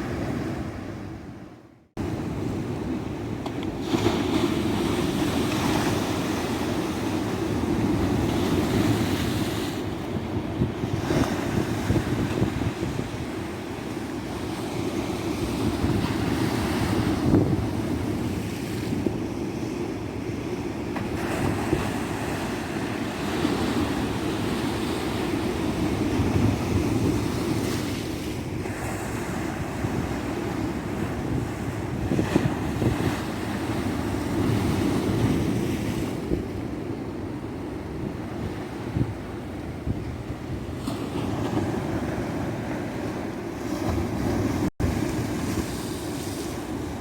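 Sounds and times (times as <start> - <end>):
wind buffeting microphone: 2.0 - 14.6, 15.2 - 19.2, 23.3 - 47.0.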